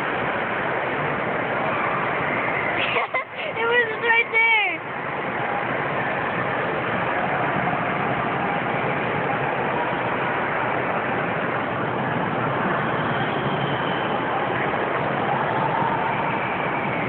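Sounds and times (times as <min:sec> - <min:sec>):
shopping mall background din: 0:00.0 - 0:17.0.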